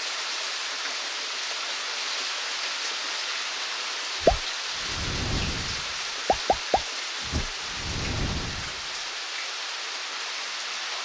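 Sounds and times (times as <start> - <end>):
low rumble: 4.2 - 9.0
heavy rain falling: 4.2 - 9.4.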